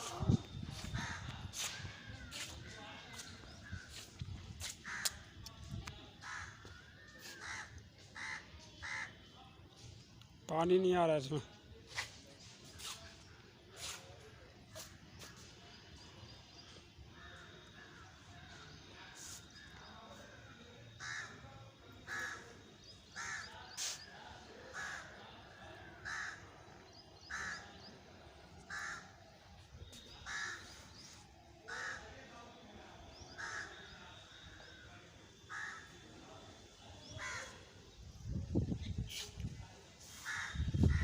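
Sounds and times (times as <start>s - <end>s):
crow cawing: 6.2s - 6.7s, 7.4s - 9.1s, 21.0s - 21.3s, 23.2s - 23.5s, 24.7s - 25.0s, 26.0s - 26.4s, 27.3s - 27.8s, 28.7s - 29.1s, 30.2s - 30.6s, 31.7s - 32.0s, 33.4s - 33.8s, 35.5s - 35.9s, 40.2s - 40.6s.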